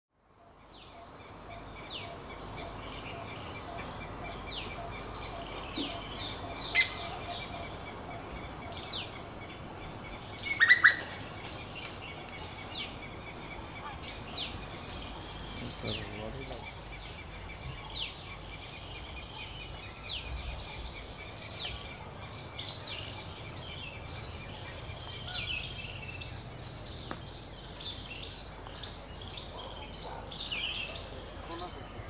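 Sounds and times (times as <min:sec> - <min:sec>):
bird chirping: 0:00.4 - 0:32.0
steady high hiss: 0:00.7 - 0:29.5
sharp loud bird call: 0:10.4 - 0:11.2.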